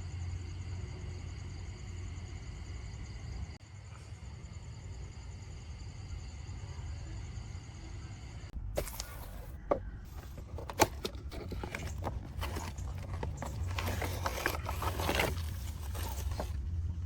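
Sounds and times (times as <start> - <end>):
clicks and knocks handling model: 8.8 - 16.6
scrubbing rustle: 8.8 - 16.6.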